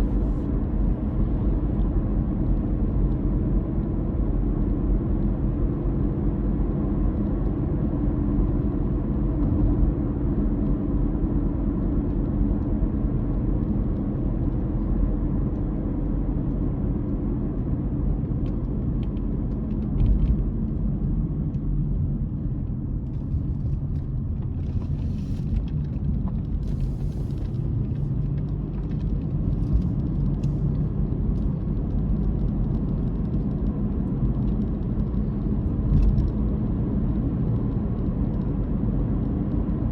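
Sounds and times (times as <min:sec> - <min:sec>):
road rumble: 0:00.0 - 0:39.9.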